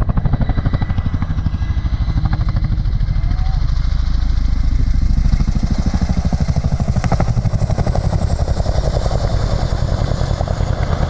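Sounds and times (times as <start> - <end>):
helicopter rotors beating: 0.0 - 11.0.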